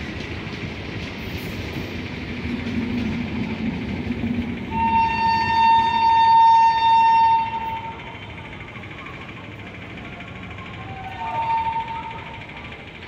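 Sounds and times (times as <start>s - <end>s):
electric train rumbling past: 0.0s - 13.0s
train horn blast: 4.7s - 8.0s, 11.0s - 12.2s.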